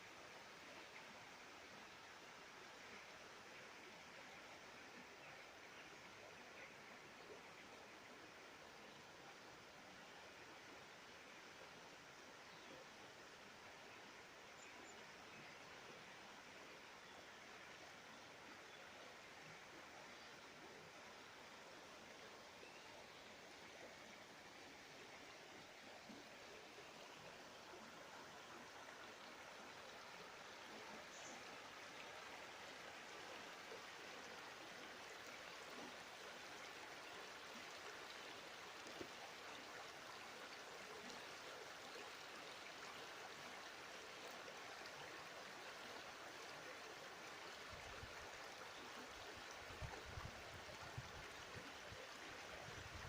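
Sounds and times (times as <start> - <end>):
river flowing: 0.0 - 53.0.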